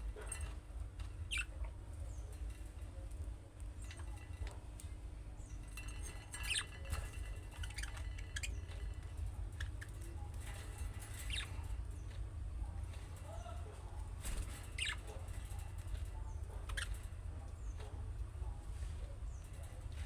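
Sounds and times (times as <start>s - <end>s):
steady low hum: 0.0s - 20.0s
budgerigars chirping: 14.8s - 15.1s.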